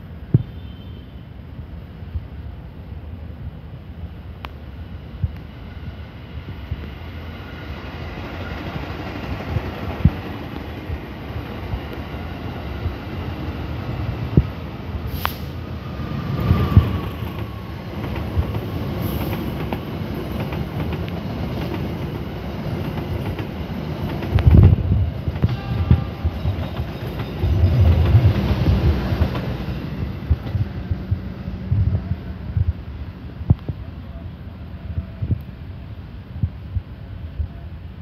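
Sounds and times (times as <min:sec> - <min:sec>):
train wheels rumbling on rail: 0:01.6 - 0:38.0
clacks over rail joints: 0:16.8 - 0:31.3.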